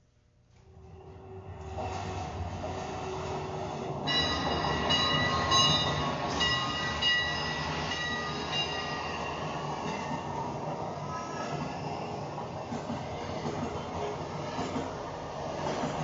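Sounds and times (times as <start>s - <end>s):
steady rumbling: 0.3s - 8.5s
high whistling squeal: 1.0s - 15.2s.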